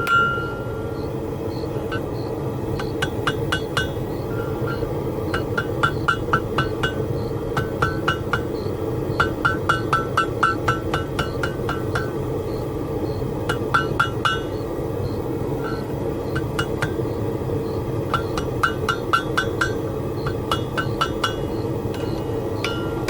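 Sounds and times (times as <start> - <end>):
hammer ringing on anvil: 0.0 - 1.0, 2.8 - 12.2, 13.5 - 14.6, 16.4 - 17.0, 18.1 - 23.0
steady background noise: 0.0 - 23.0.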